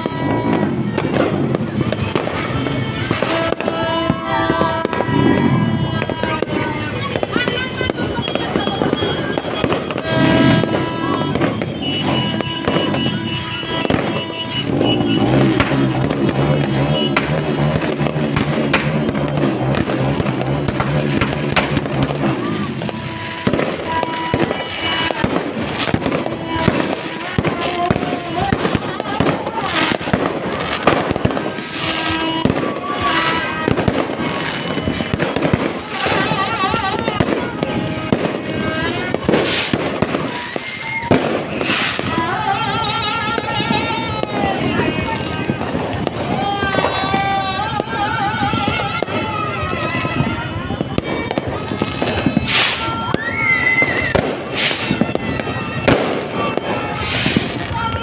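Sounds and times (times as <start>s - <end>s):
fireworks popping and crackling: 0.0s - 58.0s.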